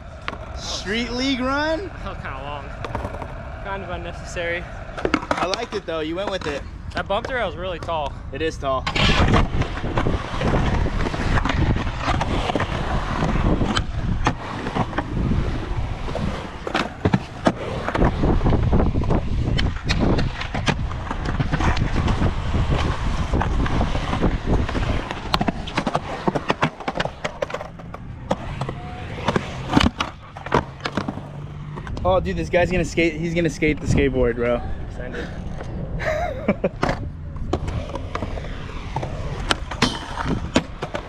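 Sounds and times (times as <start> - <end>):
skateboard rolling: 0.0 - 6.4, 9.0 - 31.8, 36.8 - 41.0
skateboard clacks and slaps: 2.7 - 3.6, 24.8 - 31.2.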